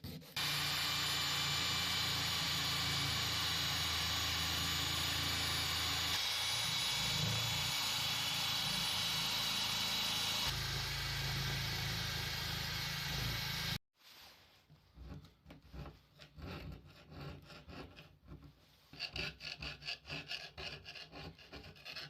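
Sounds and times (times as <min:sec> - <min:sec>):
electric power tool whining: 0:00.4 - 0:13.8.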